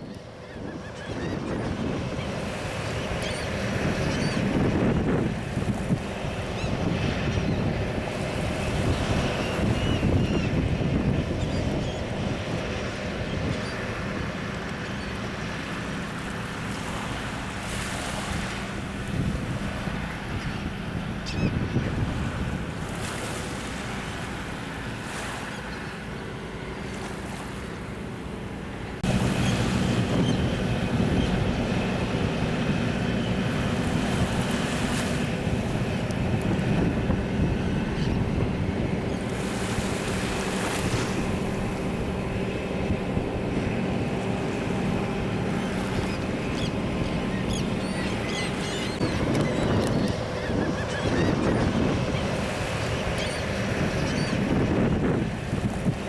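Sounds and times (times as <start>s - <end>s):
wind buffeting microphone: 0.0s - 14.4s, 17.9s - 23.2s, 29.0s - 56.0s
sea surf: 0.0s - 56.0s
steady low hum: 25.9s - 56.0s.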